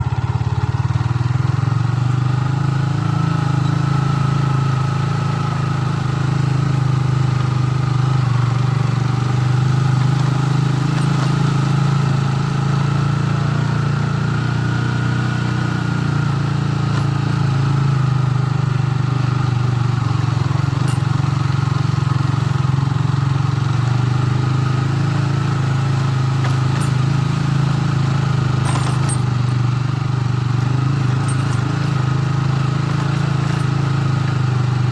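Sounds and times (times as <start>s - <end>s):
engine running steadily: 0.0s - 34.9s.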